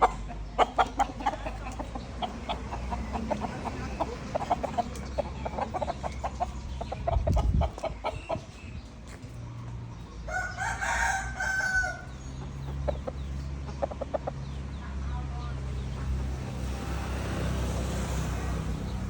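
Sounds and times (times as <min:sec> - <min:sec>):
rapid clucking: 0:00.0 - 0:08.9, 0:12.3 - 0:14.9
rooster crowing: 0:10.3 - 0:12.2.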